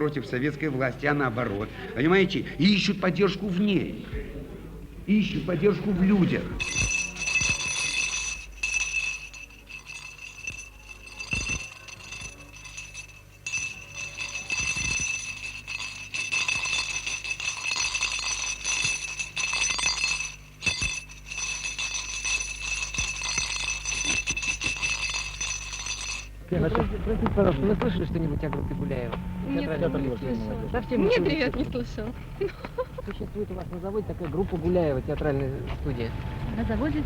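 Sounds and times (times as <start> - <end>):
low steady hum: 1.7 - 37.0
small chimes jingling: 5.1 - 27.6, 28.9 - 36.0
steady ringing tone: 5.1 - 35.0.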